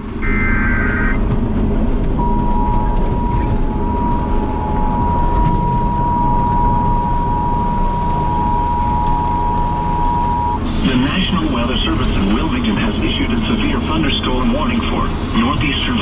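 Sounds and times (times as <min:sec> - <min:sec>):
tractor engine rumbling: 0:00.0 - 0:16.0
two-tone alert signal: 0:00.2 - 0:01.2, 0:02.2 - 0:11.5.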